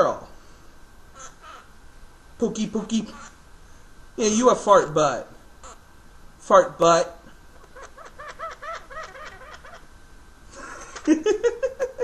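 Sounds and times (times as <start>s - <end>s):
parrot chuckling notes: 1.2s - 1.7s, 7.6s - 9.9s.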